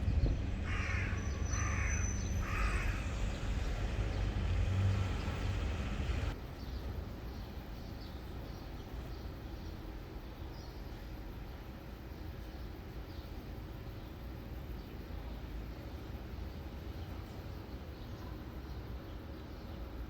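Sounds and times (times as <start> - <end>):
steady low rumble: 0.0 - 6.4
crow cawing: 0.6 - 3.7.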